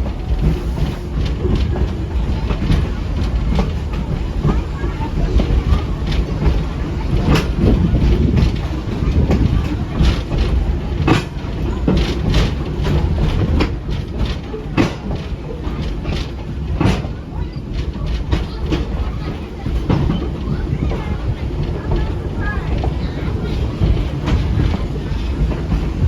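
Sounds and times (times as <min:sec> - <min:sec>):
train car rumbling: 0:00.0 - 0:26.0
wheels clacking on rail joints: 0:00.0 - 0:26.0.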